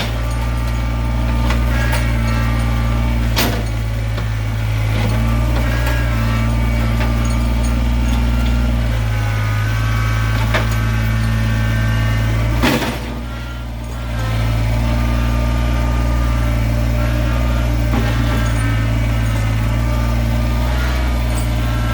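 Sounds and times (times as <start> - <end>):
chainsaw cutting logs: 0.0 - 21.9.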